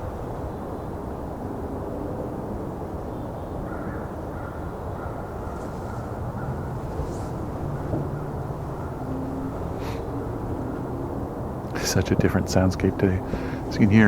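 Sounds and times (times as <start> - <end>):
urban background rumble: 0.0 - 14.0
distant crows cawing: 3.4 - 12.0, 12.6 - 14.0.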